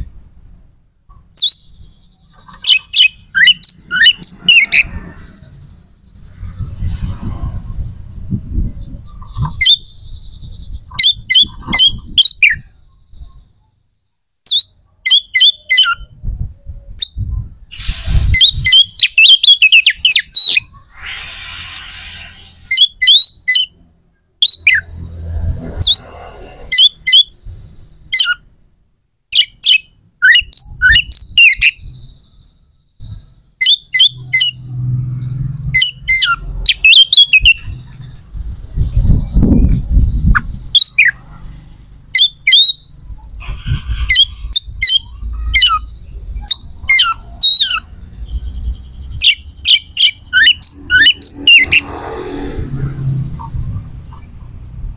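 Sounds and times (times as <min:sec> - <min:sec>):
bird chirping: 0:01.1 - 0:28.6, 0:29.3 - 0:54.9
low rumbling noise: 0:03.2 - 0:13.6, 0:37.5 - 0:54.9.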